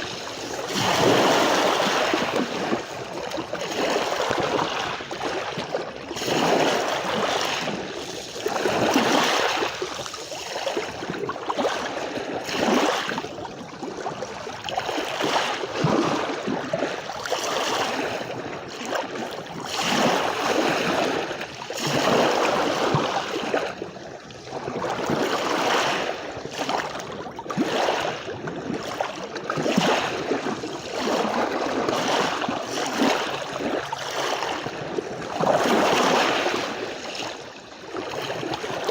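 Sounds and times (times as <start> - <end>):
sea waves washing onto beach: 0.0 - 13.3.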